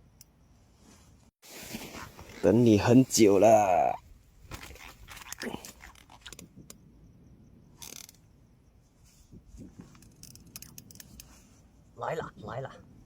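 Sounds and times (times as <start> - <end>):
small clicks of fishing tackle: 4.5 - 6.8, 7.8 - 8.2, 9.7 - 11.4.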